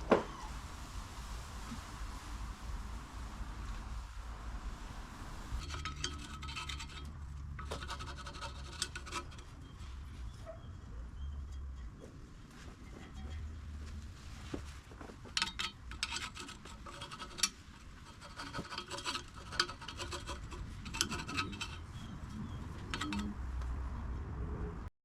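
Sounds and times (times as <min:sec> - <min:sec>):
hand tool scraping metal: 0:05.6 - 0:10.2, 0:15.3 - 0:23.4.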